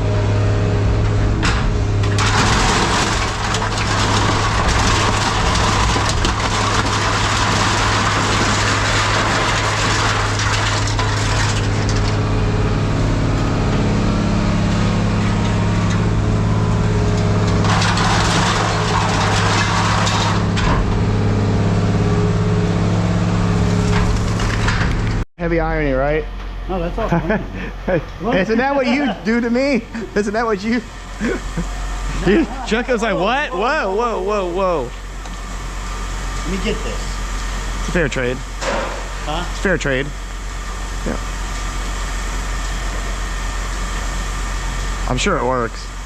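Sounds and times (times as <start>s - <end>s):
hydraulic shear humming: 0.0s - 46.0s
metal crushing and cutting: 1.4s - 12.4s, 14.7s - 21.1s, 23.6s - 25.2s.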